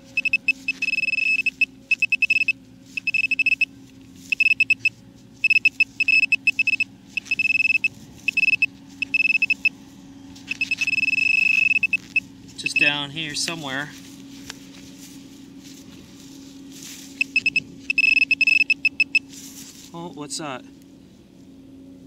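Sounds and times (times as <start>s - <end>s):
metal detector pinpointer beeping: 0.0s - 9.7s, 10.5s - 13.4s, 17.1s - 19.3s.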